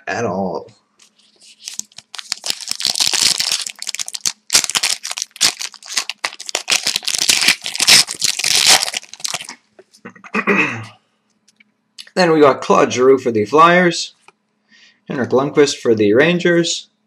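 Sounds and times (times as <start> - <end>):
wrapper being torn and crinkled: 1.1 - 9.6.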